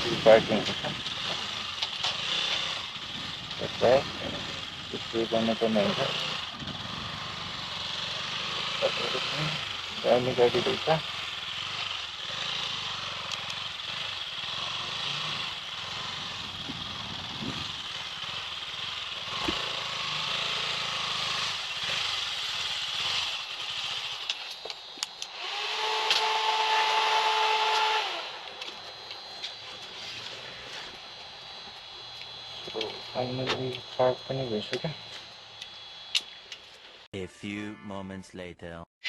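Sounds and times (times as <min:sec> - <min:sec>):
loud steady tone: 0:00.0 - 0:01.7, 0:06.9 - 0:21.5, 0:25.7 - 0:36.5
motorcycle engine: 0:00.0 - 0:37.1
wind rush: 0:16.4 - 0:17.8.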